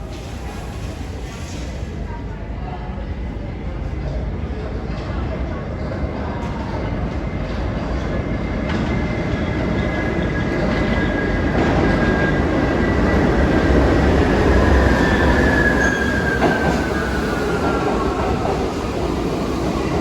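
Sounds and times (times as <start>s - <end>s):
heavy train rumble: 0.0s - 20.0s
train wheels squealing on rail: 9.3s - 18.9s.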